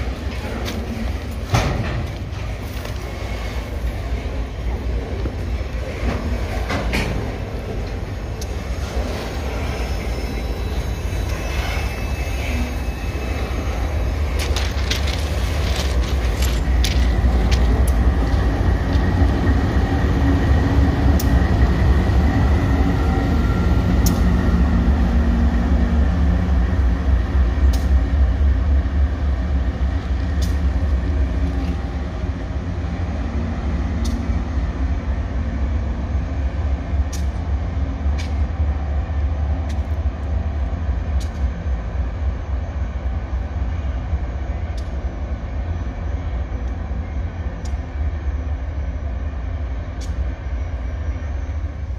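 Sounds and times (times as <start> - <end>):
diesel locomotive rumbling: 0.0 - 51.9
sharp rail clicks: 24.0 - 24.3, 27.7 - 28.1, 30.3 - 31.8, 34.0 - 34.4, 37.0 - 37.5, 49.9 - 50.3.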